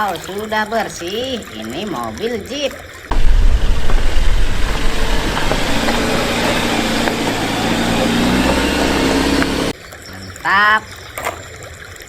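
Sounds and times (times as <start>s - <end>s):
car engine idling: 3.1s - 9.7s.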